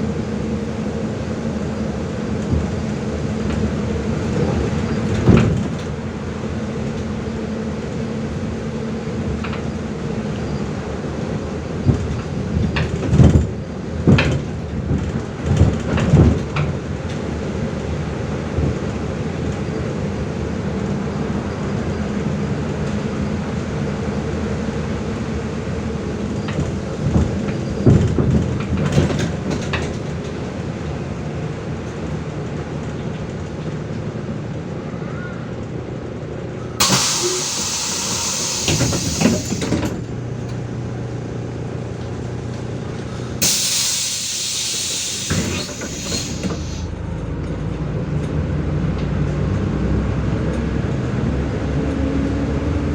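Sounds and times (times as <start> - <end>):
bus body rattling over bumps: 0.0 - 34.8, 35.6 - 52.9
bus engine running: 0.0 - 52.9
compressed air hiss: 36.8 - 39.9, 43.1 - 46.9.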